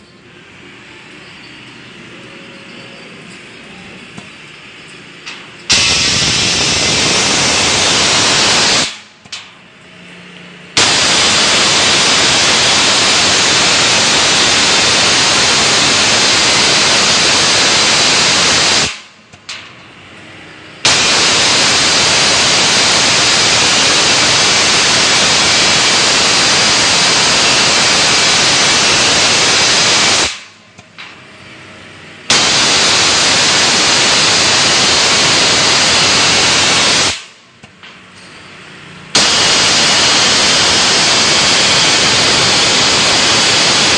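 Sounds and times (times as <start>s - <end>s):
plasma torch hissing: 5.2s - 9.5s, 10.7s - 19.6s, 20.5s - 30.9s, 32.2s - 37.8s, 39.1s - 43.9s.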